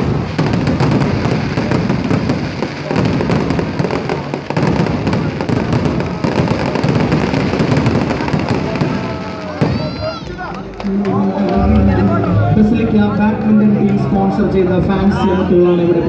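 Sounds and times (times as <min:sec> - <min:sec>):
fireworks bursting and crackling: 0:00.0 - 0:13.2
low rumble: 0:10.7 - 0:13.8.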